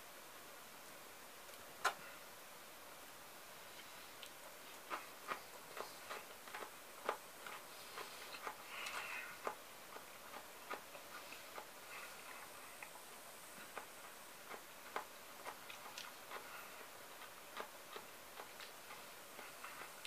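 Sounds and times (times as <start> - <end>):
crunchy chewing: 3.7 - 20.0.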